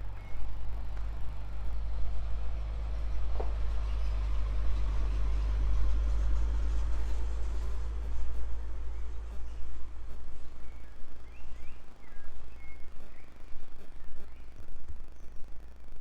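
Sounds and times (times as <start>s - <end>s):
motor vehicle passing: 0.0s - 12.2s.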